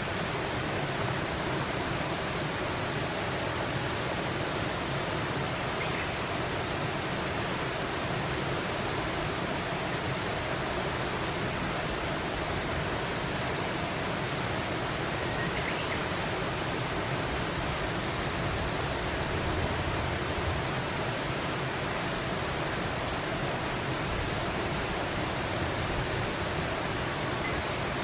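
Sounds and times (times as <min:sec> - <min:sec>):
flowing water rushing: 0:00.0 - 0:28.0.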